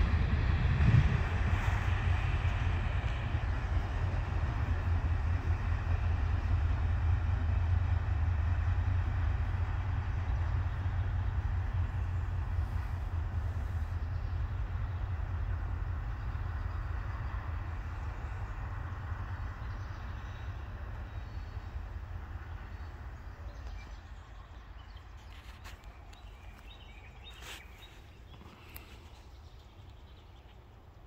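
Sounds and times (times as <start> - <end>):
freight train rolling: 0.0 - 31.0
faint clicks: 25.2 - 26.8, 28.3 - 30.6.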